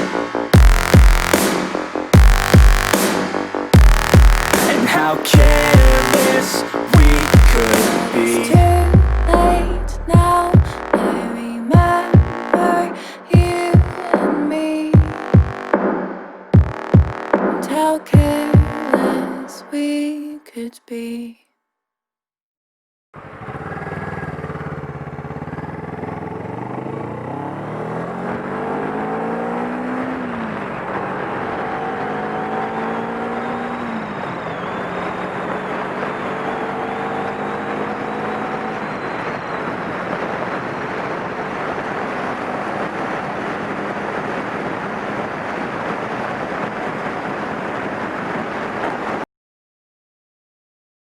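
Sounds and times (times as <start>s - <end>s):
motorcycle engine accelerating: 8.5s - 11.0s, 23.2s - 39.6s.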